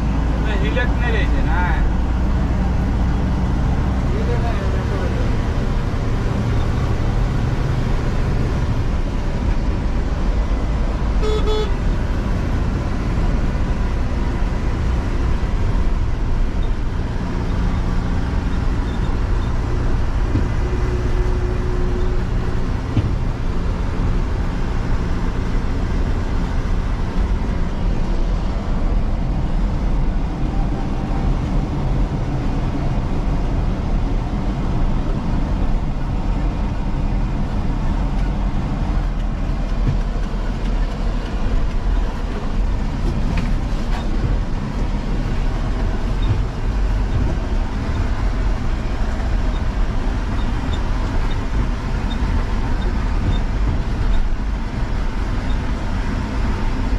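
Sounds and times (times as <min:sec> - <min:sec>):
diesel engine running: 0:00.0 - 0:56.9
horn toot: 0:11.2 - 0:11.8.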